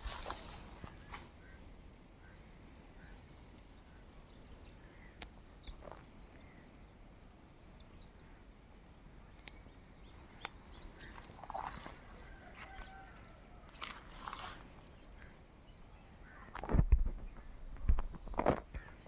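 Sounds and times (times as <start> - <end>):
bird chirps: 0.0 - 1.6.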